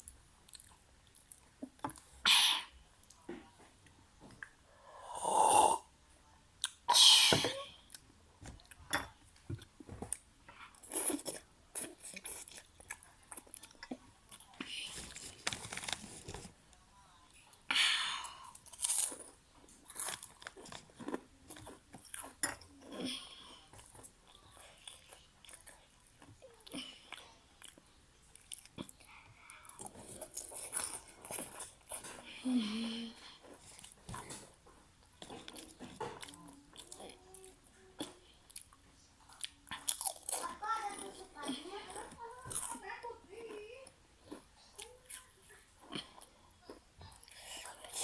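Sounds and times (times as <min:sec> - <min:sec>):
person chewing with wet clicks: 0:00.0 - 0:02.1, 0:06.6 - 0:06.9, 0:07.9 - 0:14.6, 0:18.5 - 0:23.0, 0:23.7 - 0:32.2, 0:33.4 - 0:43.6, 0:44.2 - 0:48.0.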